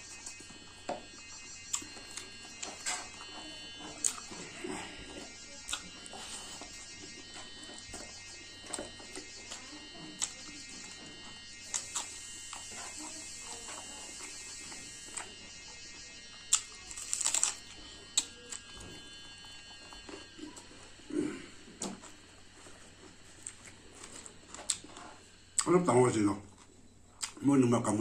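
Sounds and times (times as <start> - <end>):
electrical buzz: 0.0 - 26.5
chewing smacks and clicks: 3.8 - 6.9, 11.6 - 12.8, 16.5 - 20.7, 23.4 - 25.7, 26.5 - 27.4.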